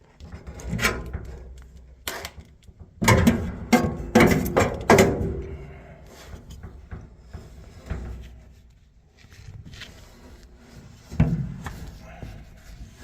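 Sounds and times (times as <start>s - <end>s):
clattering knocks: 2.8s - 8.4s
rubbing and scraping: 3.0s - 13.0s.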